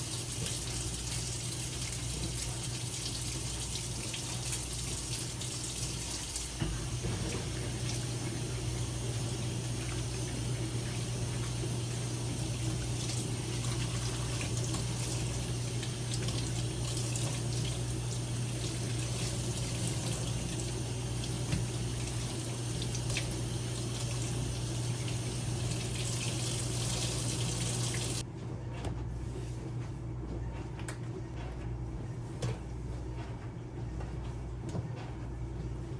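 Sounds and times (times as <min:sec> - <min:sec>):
tap water running into sink: 0:00.0 - 0:28.2.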